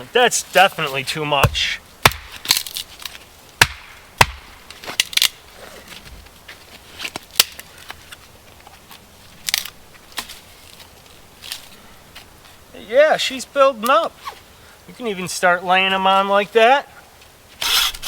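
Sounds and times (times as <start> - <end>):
dull thud: 1.4 - 2.5, 3.6 - 4.6
wood cracking and knocking: 1.4 - 2.8.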